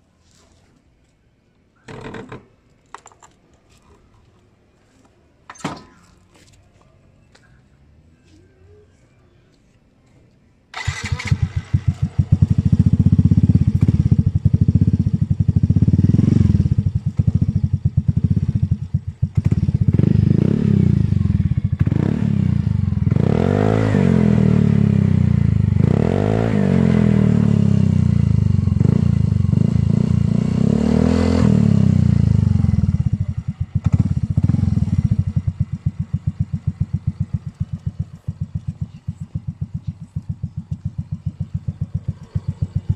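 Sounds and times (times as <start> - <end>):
scooter engine revving with exhaust pops: 10.8 - 42.9.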